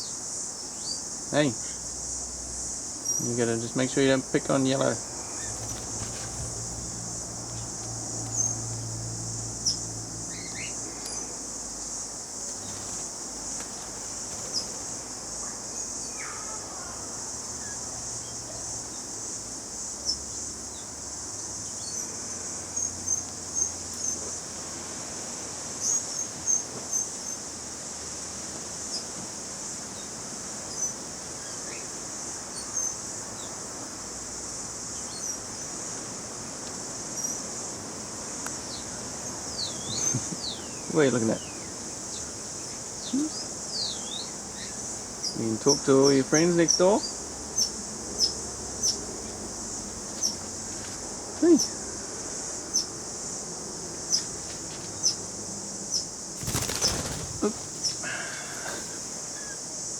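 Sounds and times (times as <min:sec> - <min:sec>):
small birds chirping: 0:00.0 - 0:01.9, 0:02.9 - 0:22.1, 0:38.7 - 0:49.4, 0:50.0 - 0:50.5, 0:51.4 - 0:51.8, 0:52.6 - 0:53.0, 0:54.0 - 0:54.3, 0:54.9 - 0:59.7
insects shrilling: 0:00.0 - 0:27.6, 0:51.4 - 0:59.9.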